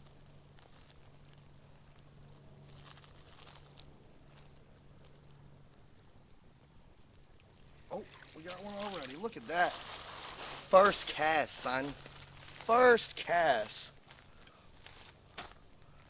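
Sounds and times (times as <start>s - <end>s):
insects trilling: 0.0s - 16.0s
faint rustling: 7.8s - 12.8s.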